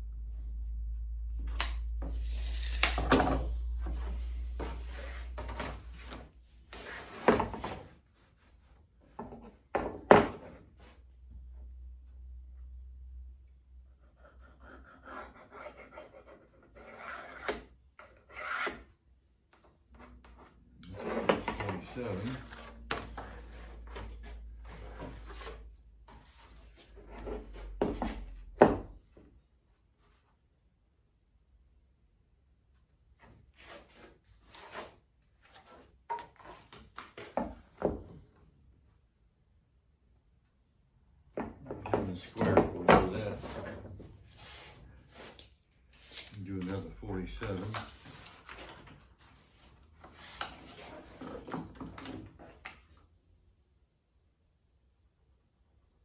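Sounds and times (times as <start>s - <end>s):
low hum: 0.0s - 5.9s
wood rubbing strokes: 2.0s - 7.2s, 44.3s - 51.4s
wood scraping by hand: 2.0s - 7.9s, 14.2s - 18.8s, 19.9s - 28.3s, 41.7s - 52.5s.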